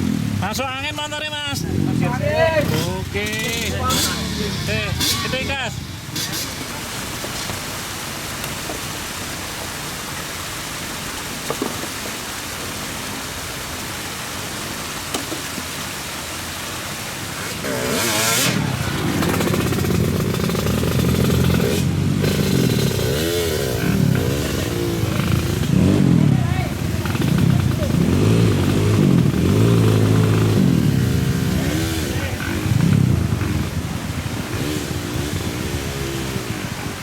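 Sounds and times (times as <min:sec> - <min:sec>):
steady hiss: 0:00.1 - 0:37.0
motorcycle engine revving: 0:01.6 - 0:07.2, 0:17.2 - 0:37.0.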